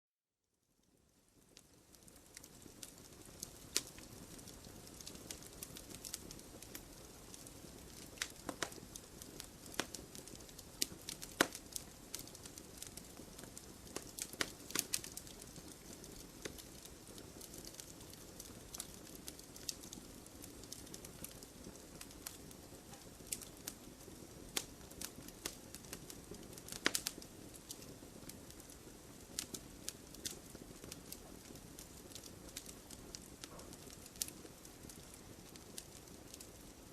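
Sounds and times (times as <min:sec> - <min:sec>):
wood fire crackling: 0:00.7 - 0:36.9.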